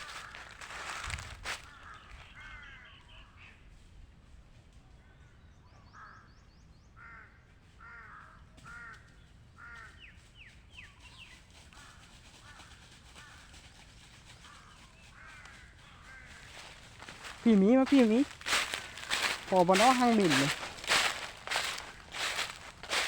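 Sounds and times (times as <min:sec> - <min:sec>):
bird calling: 0:14.4 - 0:23.0.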